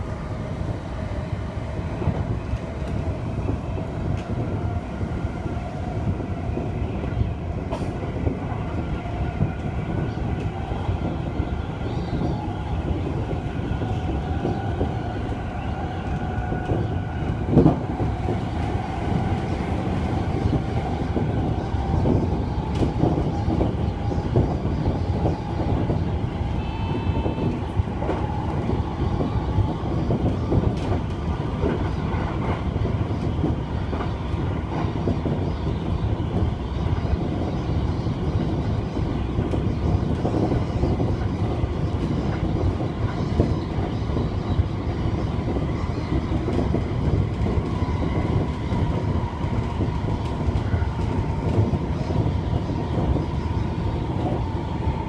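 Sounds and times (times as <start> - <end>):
train wheels rumbling on rail: 0.0 - 55.0
rail-joint clicks: 22.0 - 23.7.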